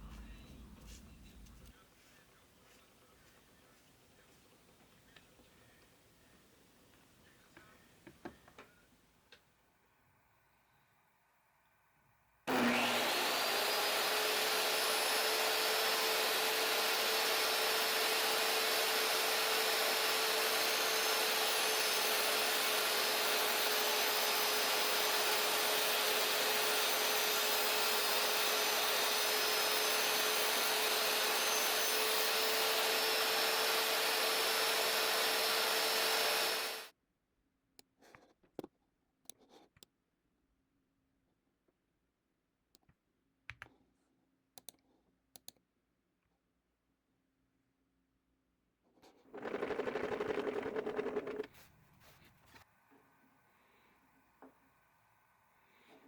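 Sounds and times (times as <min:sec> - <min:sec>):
electric motor tool humming: 0:12.5 - 0:36.9.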